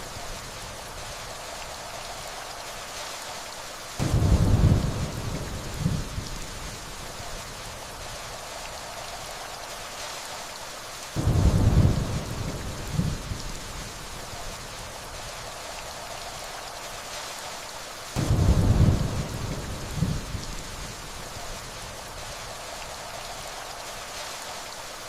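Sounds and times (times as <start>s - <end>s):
steady rainfall: 0.0s - 25.0s
distant thunder rumbles: 4.0s - 6.8s, 11.2s - 14.1s, 18.2s - 20.9s.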